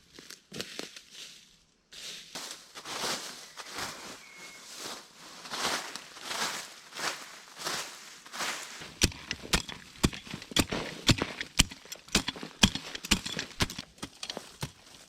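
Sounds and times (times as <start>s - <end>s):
sharp knocks: 8.8s - 14.8s.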